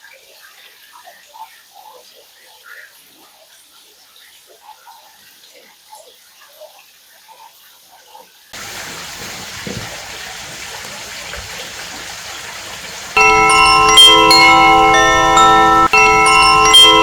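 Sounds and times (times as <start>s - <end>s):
water running from tap: 8.6s - 17.0s.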